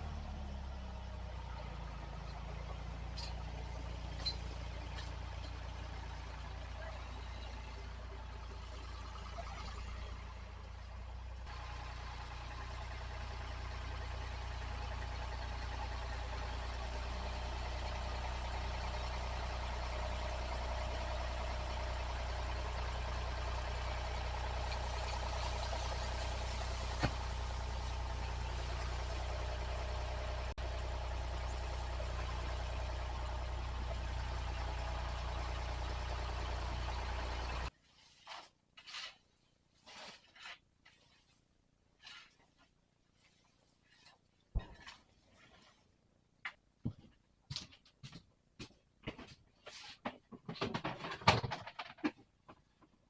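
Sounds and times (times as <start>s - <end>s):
tractor engine running: 0.0s - 37.7s.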